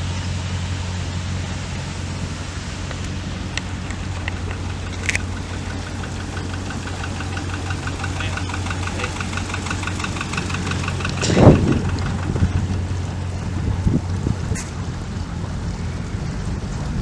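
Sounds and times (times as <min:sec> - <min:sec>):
boat engine humming: 0:00.0 - 0:17.0
fast regular ticking: 0:02.8 - 0:15.0
loud thump: 0:11.1 - 0:13.0.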